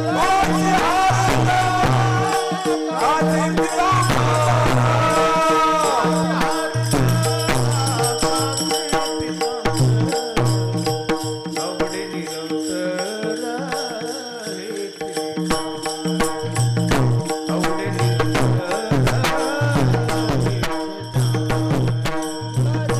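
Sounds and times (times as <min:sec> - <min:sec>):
person singing: 0:00.0 - 0:10.8
low hand-drum beats: 0:00.0 - 0:12.0, 0:15.4 - 0:22.9.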